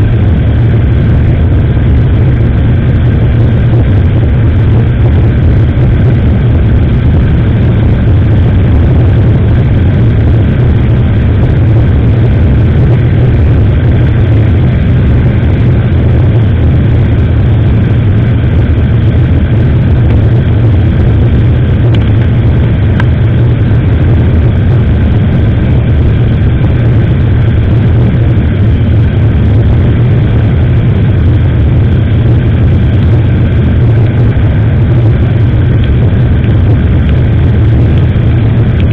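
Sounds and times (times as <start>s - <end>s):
motorcycle engine rumble: 0.0s - 38.9s.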